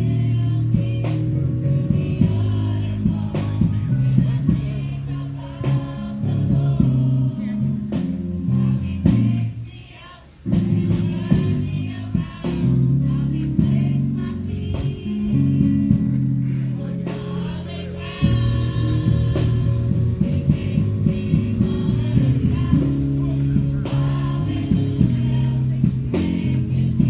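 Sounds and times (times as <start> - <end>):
gospel singing with instruments: 0.0 - 27.0.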